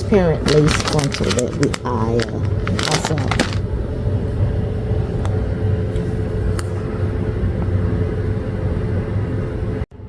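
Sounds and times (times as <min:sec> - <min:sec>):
faint constant hum: 0:00.0 - 0:10.0
steady low rumble: 0:00.0 - 0:10.0.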